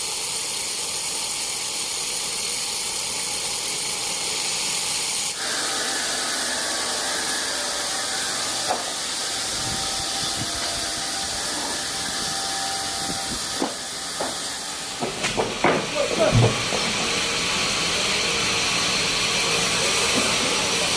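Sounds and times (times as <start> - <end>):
steady hissing: 0.0 - 5.7, 7.8 - 20.9
short knocks: 13.5 - 17.0.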